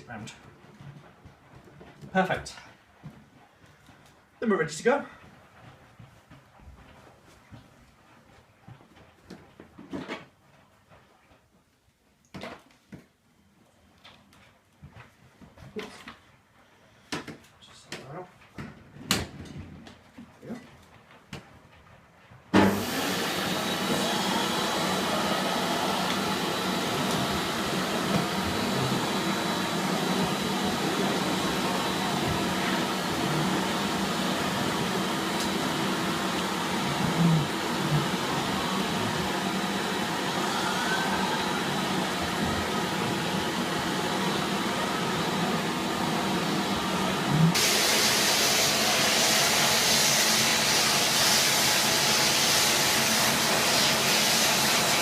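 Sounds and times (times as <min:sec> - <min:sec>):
vacuum cleaner running: 0:22.5 - 0:55.0.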